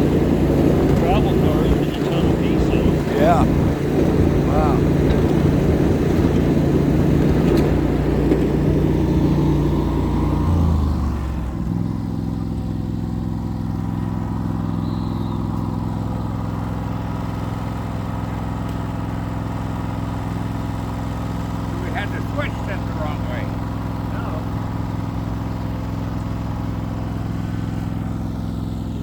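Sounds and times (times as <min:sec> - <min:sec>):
small locomotive engine: 0:00.0 - 0:29.0.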